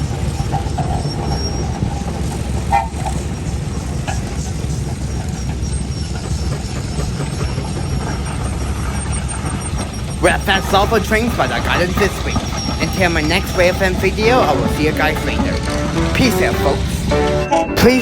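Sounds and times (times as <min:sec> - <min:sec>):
steam engine rumbling: 0:00.0 - 0:18.0
short high tone: 0:10.2 - 0:18.0.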